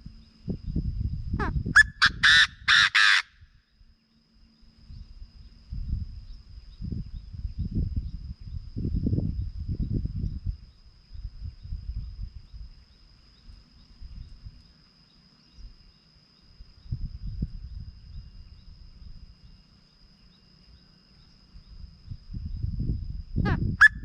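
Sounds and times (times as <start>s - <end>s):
low rumbling gusts: 0.0s - 2.0s, 4.8s - 12.8s, 16.6s - 19.4s, 21.6s - 24.0s
high insect drone: 0.0s - 24.0s.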